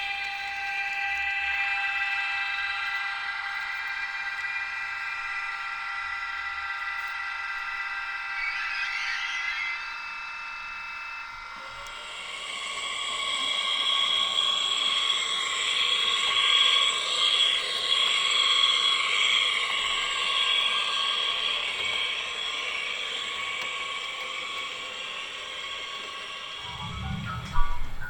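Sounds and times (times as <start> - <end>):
model train motor whirring: 10.4 - 26.6.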